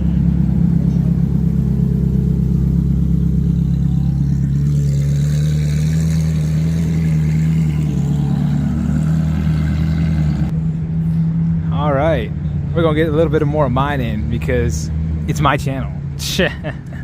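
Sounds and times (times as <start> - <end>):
car engine running at low revs: 0.0 - 17.0.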